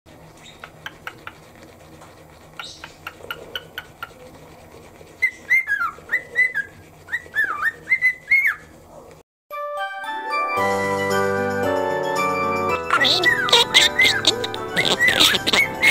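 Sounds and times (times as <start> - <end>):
cockatiel whistling: 5.2 - 8.7, 12.5 - 15.9.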